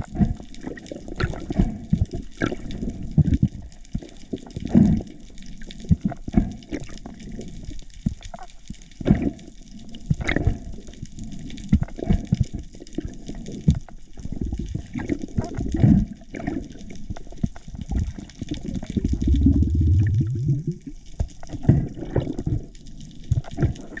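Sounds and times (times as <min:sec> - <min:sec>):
water sloshing underwater: 0:00.0 - 0:24.0
low hum rising in pitch: 0:19.1 - 0:20.9.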